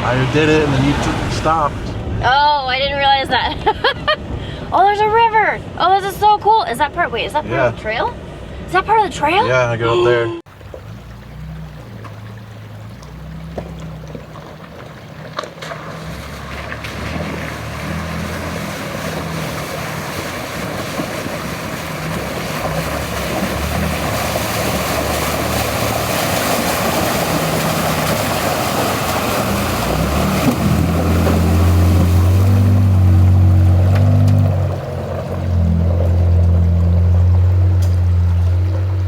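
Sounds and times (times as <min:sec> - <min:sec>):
water rushing and splashing: 0:00.0 - 0:03.4, 0:08.8 - 0:39.0
truck engine running: 0:10.5 - 0:39.0.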